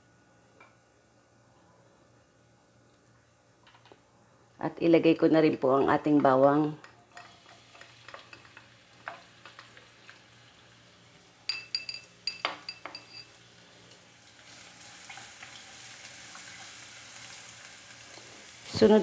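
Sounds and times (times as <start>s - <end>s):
low steady hum: 0.0s - 19.0s
utensils clinking against pan: 7.1s - 9.8s, 11.4s - 13.4s
garlic sizzling in oil: 7.1s - 11.5s, 13.0s - 19.0s.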